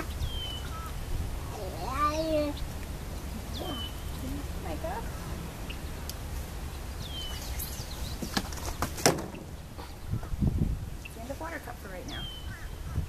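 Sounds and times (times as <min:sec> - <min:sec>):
low outdoor rumble: 0:00.0 - 0:13.0
dull low thumps: 0:09.2 - 0:11.0.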